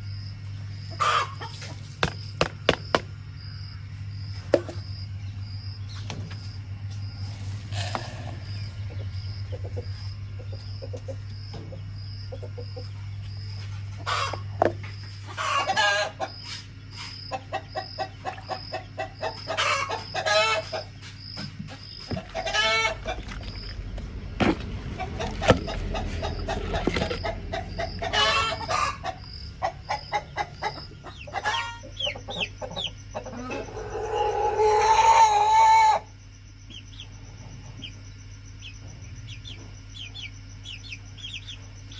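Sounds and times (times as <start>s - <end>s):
chickens clucking: 0.5s - 3.7s, 4.3s - 36.1s
drawn-out chicken calls: 0.8s - 3.0s, 7.2s - 36.1s.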